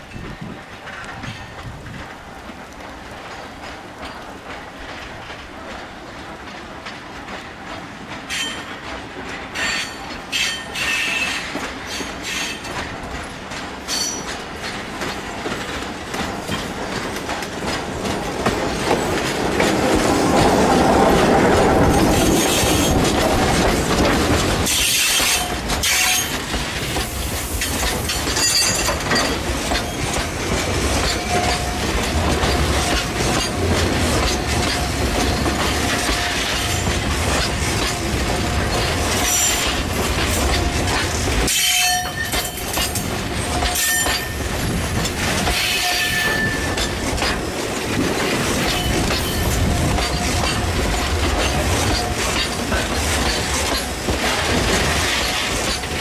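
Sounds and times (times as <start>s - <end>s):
electric train passing: 0.0s - 56.0s
wheels clicking over rail joints: 0.0s - 56.0s
wheel squeal: 45.6s - 46.9s.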